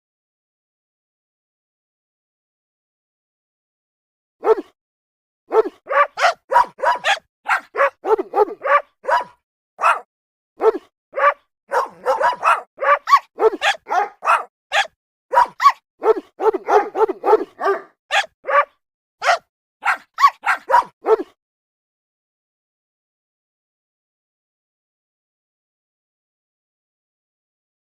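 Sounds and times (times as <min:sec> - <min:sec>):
dog barking: 0:04.4 - 0:04.8, 0:05.5 - 0:21.4.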